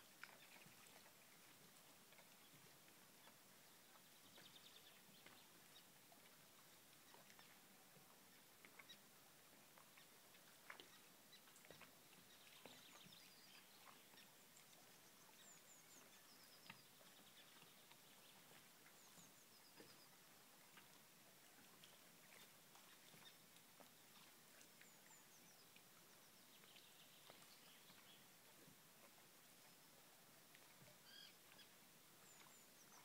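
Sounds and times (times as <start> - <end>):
faint bird calls: 30.9 - 33.0.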